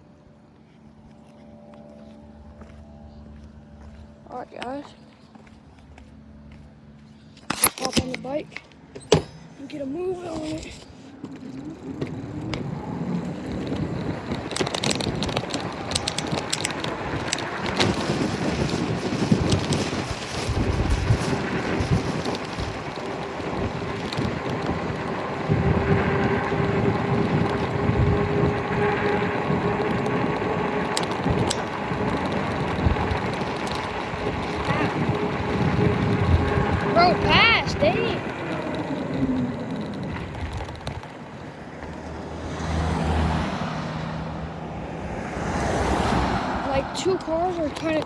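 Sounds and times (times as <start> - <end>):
wind buffeting microphone: 10.0 - 48.0
electric motor whine: 11.2 - 43.6.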